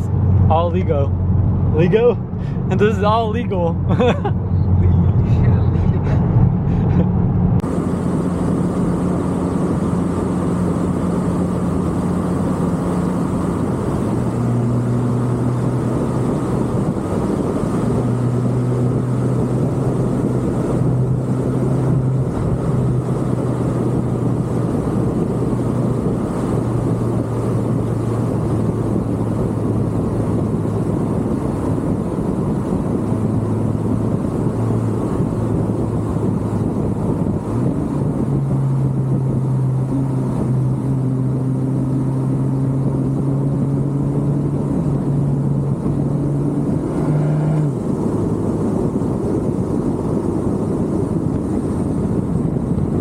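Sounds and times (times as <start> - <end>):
car engine hum: 0.0 - 53.0
road noise inside car: 0.0 - 53.0.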